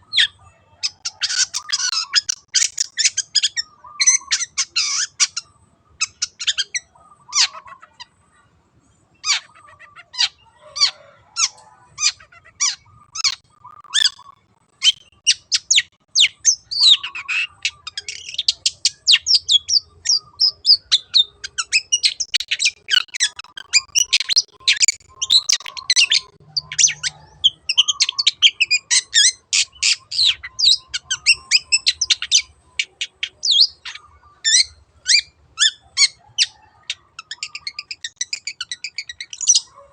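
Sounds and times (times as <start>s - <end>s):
shrike singing sharp repeated notes: 12.6s - 28.9s.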